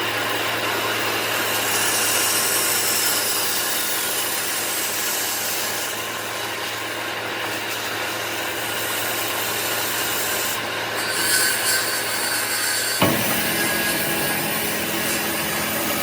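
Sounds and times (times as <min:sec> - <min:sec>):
tool scraping wood: 0:09.6 - 0:16.0.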